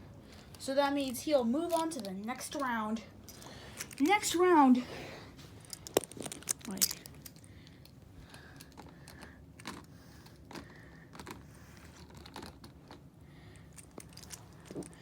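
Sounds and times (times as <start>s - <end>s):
toy trucks clicking and tapping: 1.0s - 4.2s, 5.7s - 11.4s.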